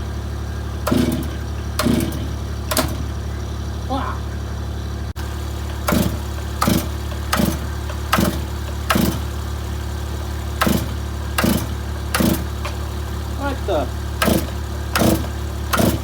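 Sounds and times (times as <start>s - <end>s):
chainsaw idling: 0.0s - 16.0s
sharp bangs: 0.8s - 3.3s, 5.6s - 9.5s, 10.5s - 13.1s, 14.1s - 16.0s.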